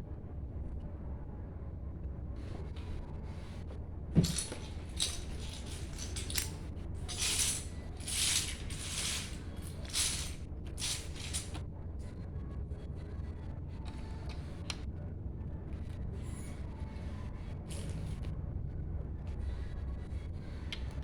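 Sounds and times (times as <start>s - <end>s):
plastic pieces rattling: 4.2s - 11.6s.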